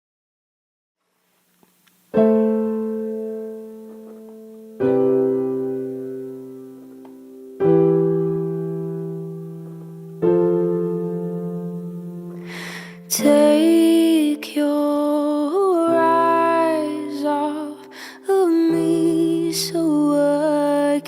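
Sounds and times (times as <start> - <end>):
piano chords: 2.1 - 21.0.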